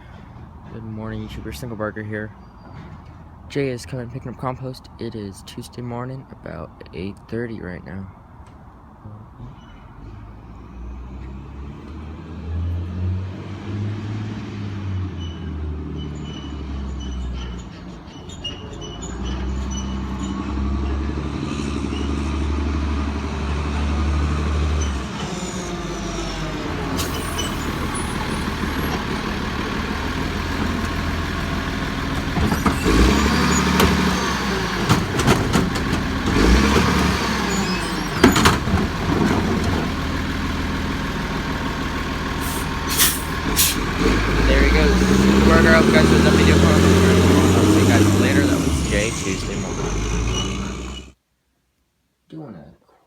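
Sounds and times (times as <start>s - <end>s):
diesel engine running loudly: 20.2s - 51.2s
clanks and bangs of cart: 32.2s - 40.0s.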